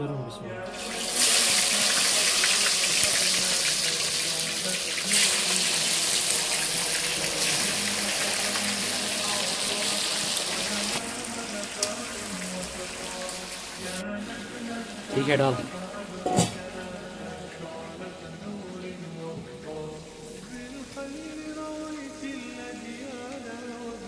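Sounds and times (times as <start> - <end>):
food sizzling in hot oil: 0.6 - 15.2.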